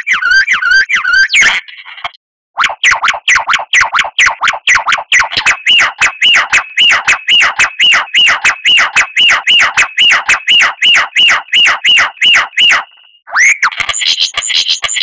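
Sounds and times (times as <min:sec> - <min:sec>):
steady high whistle: 0:04.2 - 0:14.2.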